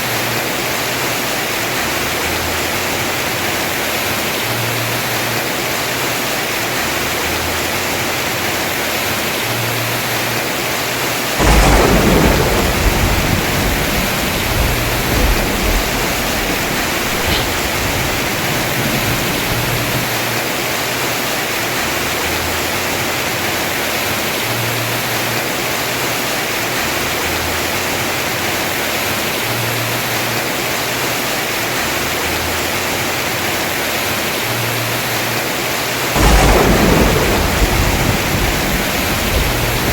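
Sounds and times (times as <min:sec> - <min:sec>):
heavy rain on a roof: 0:00.0 - 0:39.9
thunderclap rumbling: 0:11.4 - 0:20.5, 0:36.1 - 0:39.9.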